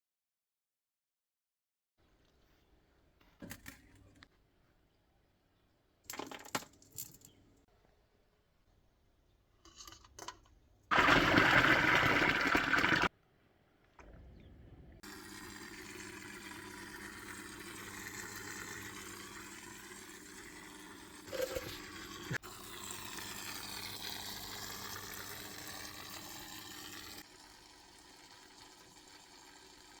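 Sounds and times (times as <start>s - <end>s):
small clicks and knocks: 9.6s - 10.6s
water flowing: 10.9s - 13.1s, 15.0s - 30.0s
water pouring: 10.9s - 13.1s, 15.0s - 30.0s.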